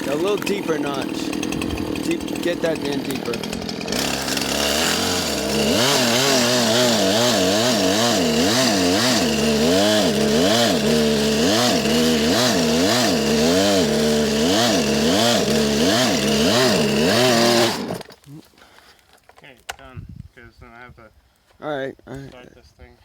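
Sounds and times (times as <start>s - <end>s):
chainsaw cutting wood: 0.0s - 18.3s.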